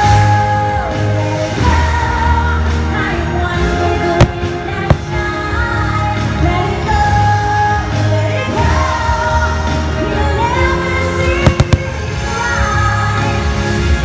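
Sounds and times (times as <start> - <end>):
song with orchestral backing: 0.0 - 14.0
firework bangs: 4.2 - 5.3, 11.4 - 12.2.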